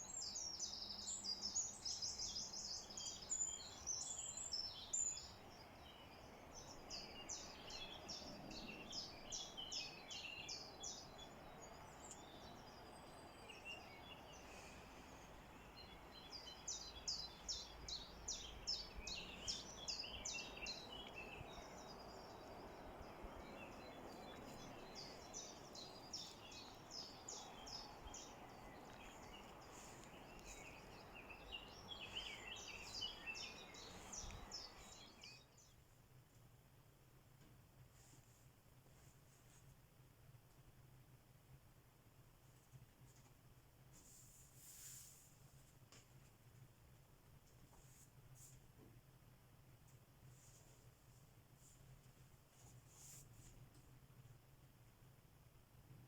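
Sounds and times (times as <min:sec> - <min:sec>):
songbirds chirping: 0:00.0 - 0:41.4
faint background hiss: 0:00.0 - 0:56.0.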